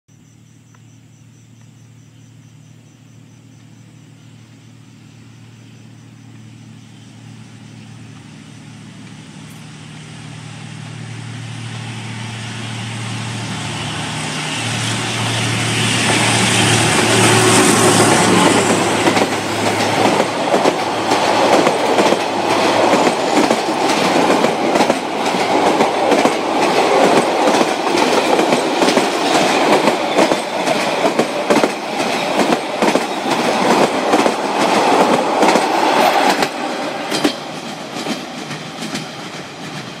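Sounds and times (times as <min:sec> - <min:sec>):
locomotive engine drone: 0:03.4 - 0:40.0
train wheels clickety-clack: 0:14.6 - 0:40.0.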